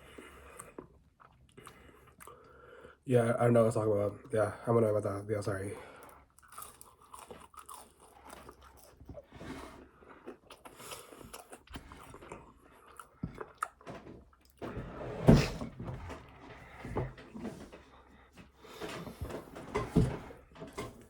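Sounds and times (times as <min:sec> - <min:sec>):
person chewing and biting: 0:06.0 - 0:14.6.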